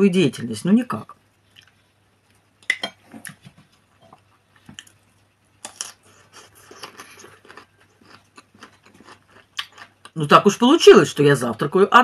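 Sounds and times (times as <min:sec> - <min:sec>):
wet chewing and mouth clicks: 0:05.6 - 0:10.2.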